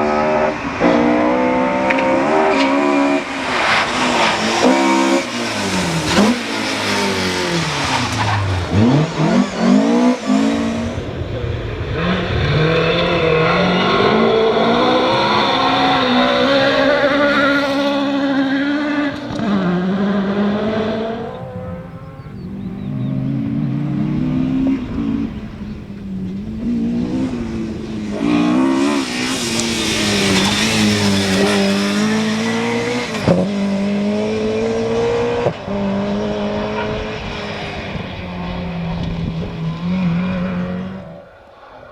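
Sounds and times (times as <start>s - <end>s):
rally car engines revving hard: 0.0s - 41.9s
sharp crack: 0.8s - 9.5s.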